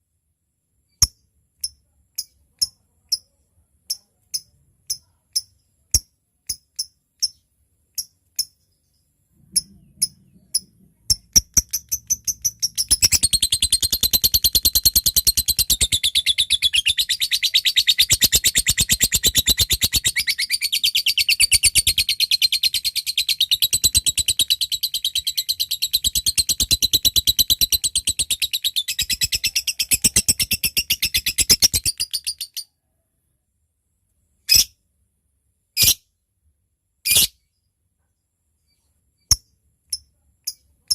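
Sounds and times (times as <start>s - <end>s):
bird fast chattering trill: 9.6s - 32.6s
bird ticking calls: 9.6s - 32.6s.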